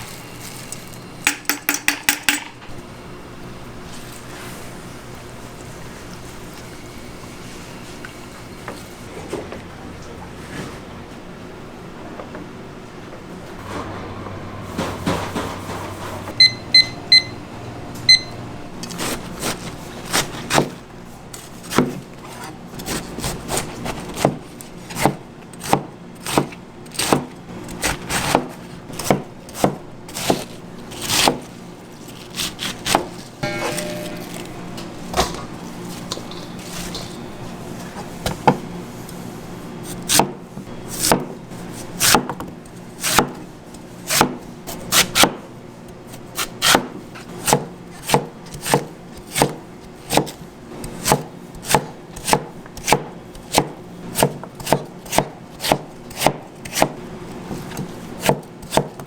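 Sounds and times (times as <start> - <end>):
short electronic beeps: 16.4 - 17.4, 18.1 - 18.4
knife chopping on wooden board: 21.7 - 22.0, 22.8 - 31.5, 40.1 - 40.4, 41.0 - 41.3, 42.0 - 43.4, 44.1 - 45.4, 46.6 - 59.0.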